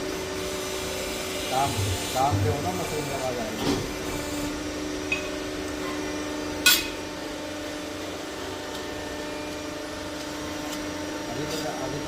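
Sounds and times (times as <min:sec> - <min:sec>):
machinery hum: 0:00.0 - 0:12.0
sharp metallic clank: 0:06.6 - 0:07.0.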